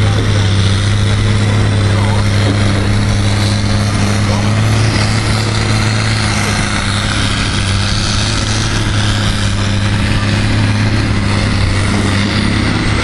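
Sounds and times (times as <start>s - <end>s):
broad rushing noise: 0.0s - 13.0s
tractor engine drone: 0.0s - 13.0s.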